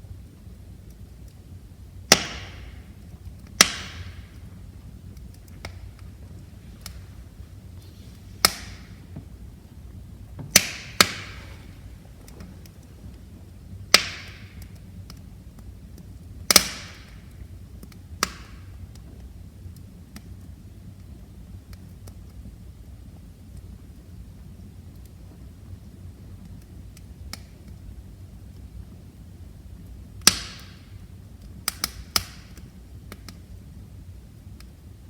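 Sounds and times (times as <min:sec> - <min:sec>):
low hiss of burning: 0:00.0 - 0:35.0
wood fire crackling: 0:00.0 - 0:35.0
sharp loud pops: 0:02.1 - 0:02.8, 0:03.6 - 0:04.3, 0:08.4 - 0:09.4, 0:10.3 - 0:12.4.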